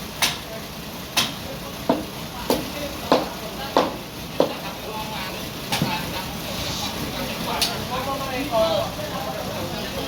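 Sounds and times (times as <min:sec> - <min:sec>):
sharp rhythmic knocks: 0:01.2 - 0:04.7.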